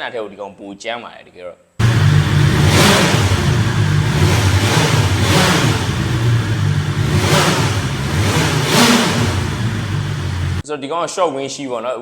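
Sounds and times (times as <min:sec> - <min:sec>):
motorcycle engine under way: 0:01.8 - 0:10.6.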